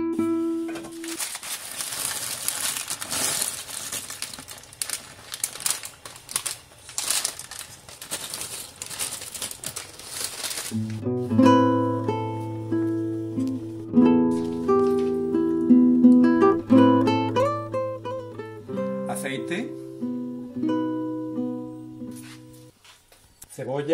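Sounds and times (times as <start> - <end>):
acoustic guitar music: 0.0 - 1.2, 10.7 - 22.7.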